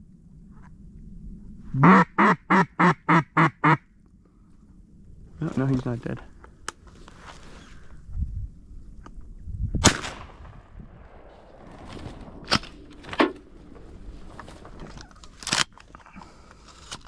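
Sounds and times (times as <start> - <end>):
wind rumble on microphone: 0.0 - 1.8, 4.2 - 15.9
sharp cracks: 9.8 - 15.9.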